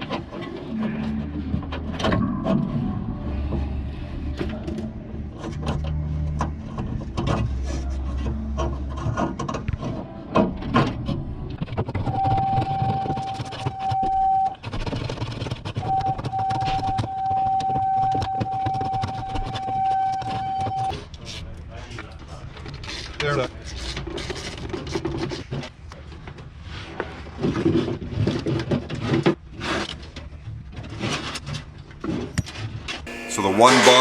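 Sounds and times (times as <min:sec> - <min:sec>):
steady whine with hiss: 0:33.1 - 0:34.0.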